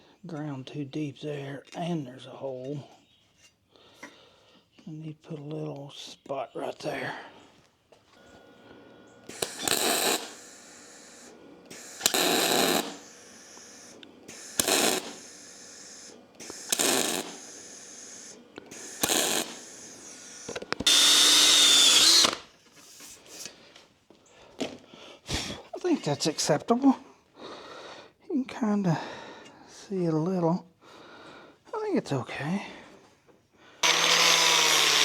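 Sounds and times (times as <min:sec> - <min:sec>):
welding arc bursts: 0:08.4 - 0:22.5, 0:33.8 - 0:35.0.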